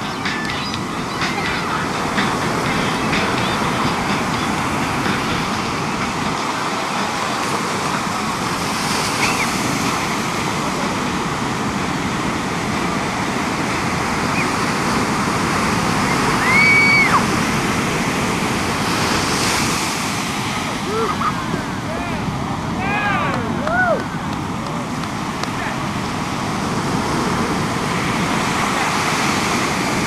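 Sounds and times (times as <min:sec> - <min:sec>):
ocean surf: 0:00.0 - 0:30.0.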